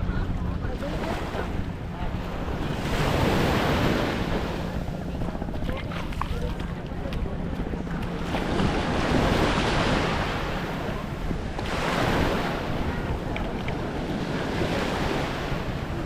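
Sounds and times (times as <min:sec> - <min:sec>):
small waves on sandy beach: 0:00.0 - 0:16.0
wind on the microphone: 0:00.0 - 0:16.0.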